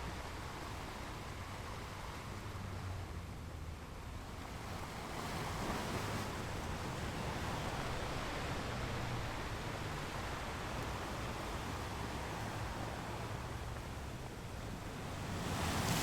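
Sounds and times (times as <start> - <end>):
sea waves breaking on rocks: 15.1 - 16.0.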